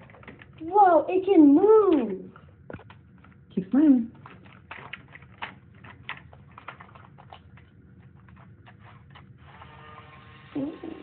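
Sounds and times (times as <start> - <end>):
small motor whirring: 8.8 - 11.0.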